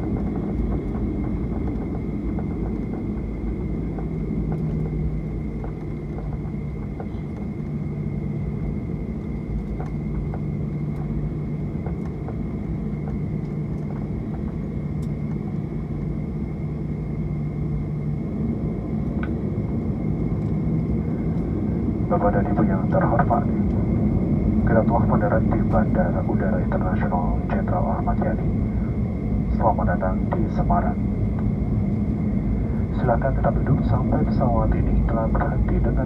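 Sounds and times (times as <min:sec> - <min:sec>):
light rattles of cabin fittings: 0:00.0 - 0:08.6, 0:09.3 - 0:16.2
low rumble of engines and wheels: 0:00.0 - 0:36.0
steady cabin hum: 0:00.0 - 0:36.0.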